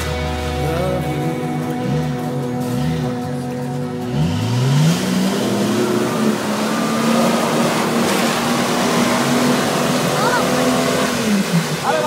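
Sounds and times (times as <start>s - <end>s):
car engine revving: 0.0s - 12.0s
water and mud splashing: 4.7s - 12.0s.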